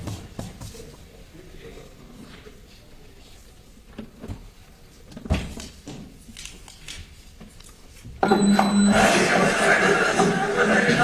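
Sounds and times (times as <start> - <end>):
low hum under noise: 8.1 - 11.0
phone video soundtrack: 8.4 - 11.0.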